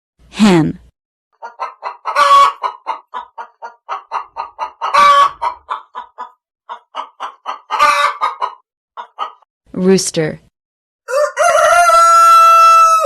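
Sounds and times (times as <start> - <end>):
hen clucking: 1.4 - 9.4.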